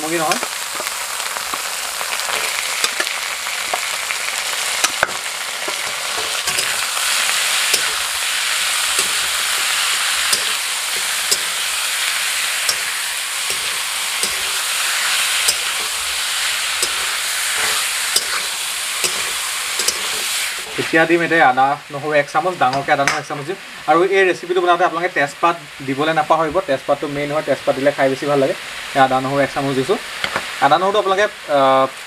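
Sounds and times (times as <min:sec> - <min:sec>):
chicken sizzling in hot oil: 0:00.0 - 0:26.3, 0:26.9 - 0:32.0
spatula scraping metal pan: 0:02.3 - 0:03.1, 0:04.8 - 0:21.0.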